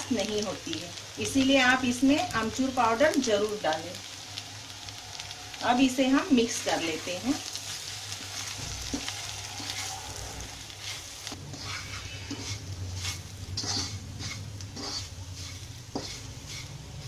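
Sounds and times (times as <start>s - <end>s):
food sizzling in oil: 0.0s - 17.0s
spatula scraping and tapping pan: 8.2s - 10.0s, 10.8s - 17.0s.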